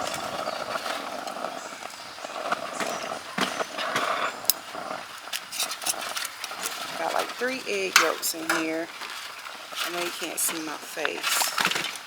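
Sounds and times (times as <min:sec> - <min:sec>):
utensils tapping against a bowl: 0:06.6 - 0:08.8.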